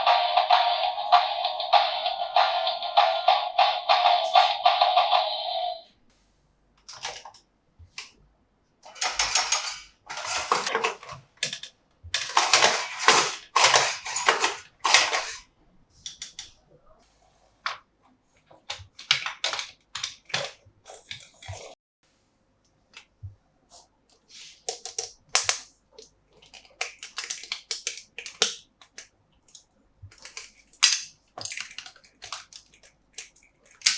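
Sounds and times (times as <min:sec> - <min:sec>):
plastic toy parts clicking: 0:06.8 - 0:07.4, 0:08.9 - 0:15.4, 0:16.0 - 0:16.6, 0:18.4 - 0:21.7, 0:24.5 - 0:33.9
rustling plastic scrapes: 0:08.9 - 0:11.3, 0:12.2 - 0:16.0.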